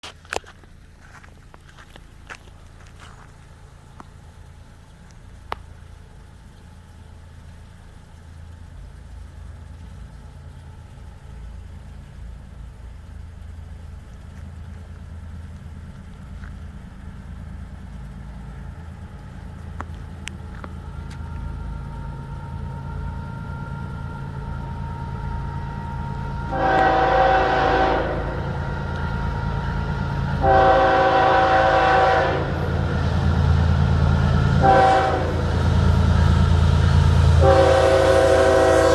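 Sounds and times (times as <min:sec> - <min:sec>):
diesel locomotive engine rumble: 0:00.0 - 0:38.9
train horn blasts: 0:25.5 - 0:38.9.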